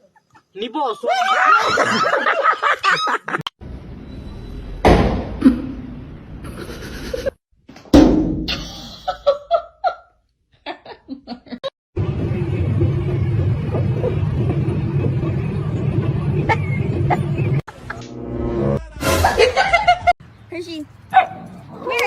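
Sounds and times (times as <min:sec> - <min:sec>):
loud thuds: 0:07.8 - 0:08.6.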